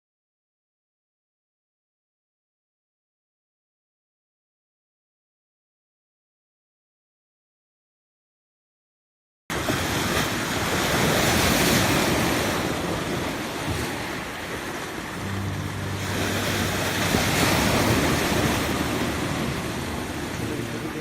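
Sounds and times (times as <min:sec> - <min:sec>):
waves breaking: 0:09.5 - 0:21.0.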